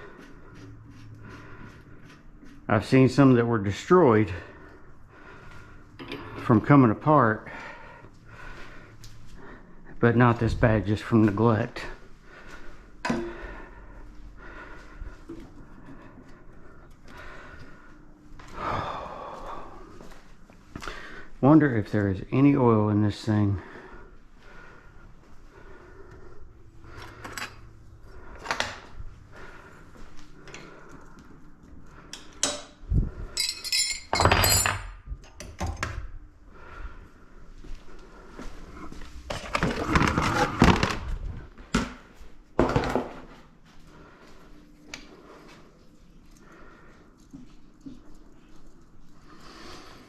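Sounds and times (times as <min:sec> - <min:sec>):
metal engine parts clinking: 0:33.3 - 0:34.9.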